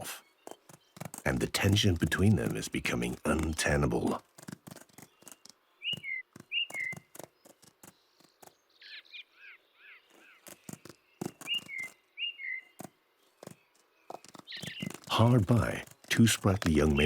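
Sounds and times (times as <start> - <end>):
bird chirps: 0.0 - 17.0
small birds calling: 0.0 - 17.0
sharp clicks and knocks: 0.5 - 5.6, 12.8 - 17.0.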